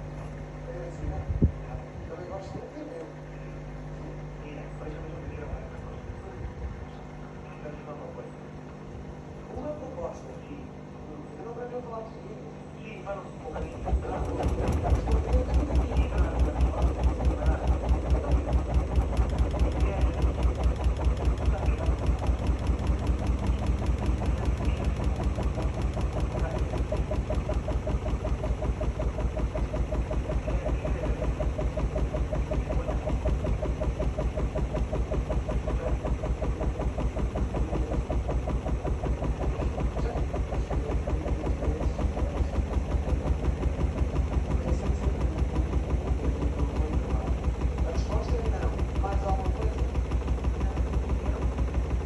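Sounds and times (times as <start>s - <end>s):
low motor hum: 0.0s - 52.0s
washing machine drum thumping: 13.6s - 52.0s.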